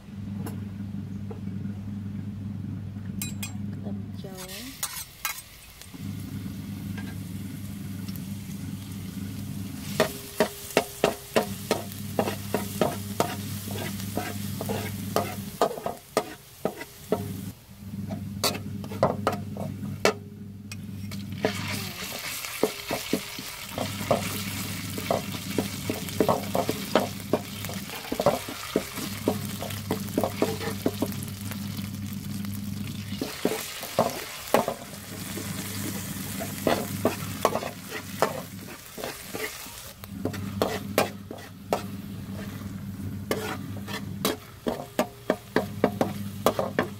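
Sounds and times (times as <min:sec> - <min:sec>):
low steady hum: 0:00.0 - 0:16.0, 0:17.0 - 0:39.1, 0:39.9 - 0:46.9
frying sizzle: 0:04.3 - 0:46.9
metal spatula scraping a wok: 0:04.4 - 0:05.8, 0:09.8 - 0:31.6, 0:33.1 - 0:46.9.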